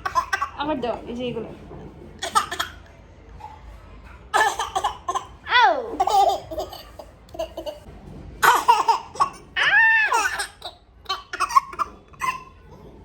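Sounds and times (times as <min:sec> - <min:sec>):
small child squealing cry: 0:09.6 - 0:10.4.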